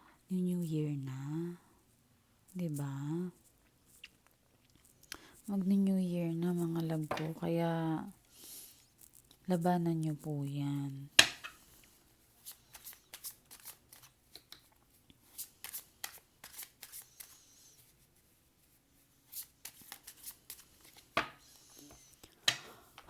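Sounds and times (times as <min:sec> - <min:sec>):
cards being shuffled: 0:12.4 - 0:18.3, 0:19.2 - 0:23.0.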